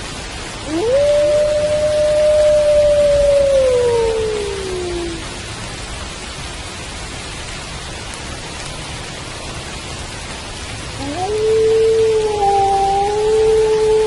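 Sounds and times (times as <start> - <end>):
steady rain falling: 0.0 - 14.0
wolf howling: 0.6 - 5.3, 11.0 - 14.0.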